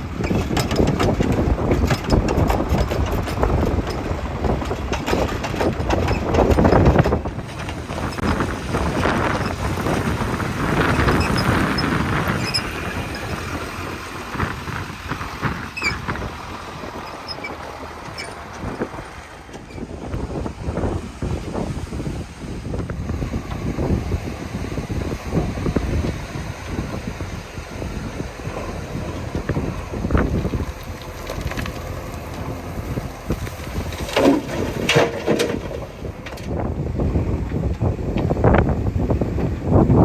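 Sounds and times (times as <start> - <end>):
diesel engine working: 0.0 - 40.0
wind noise on microphone: 0.0 - 40.0.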